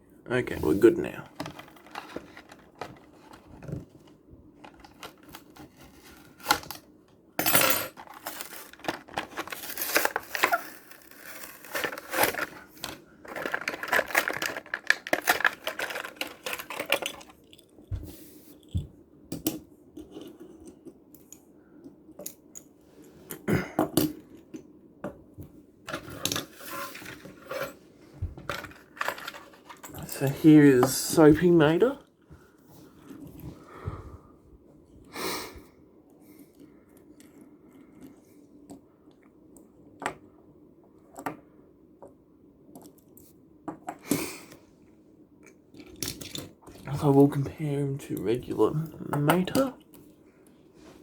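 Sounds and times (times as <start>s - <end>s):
cardboard packaging tearing: 8.0s - 17.0s
plastic packaging crinkling: 8.0s - 17.6s.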